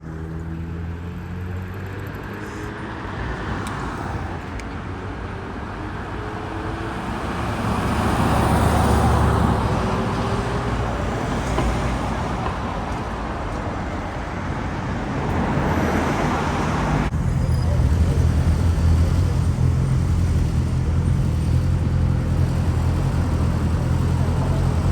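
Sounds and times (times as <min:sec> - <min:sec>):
vehicle passing: 0:05.7 - 0:24.9.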